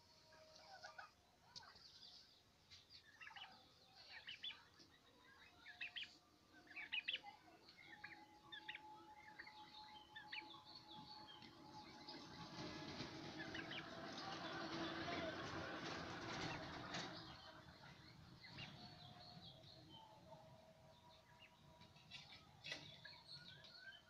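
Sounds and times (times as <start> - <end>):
faint bird chirps: 0.3 - 11.5.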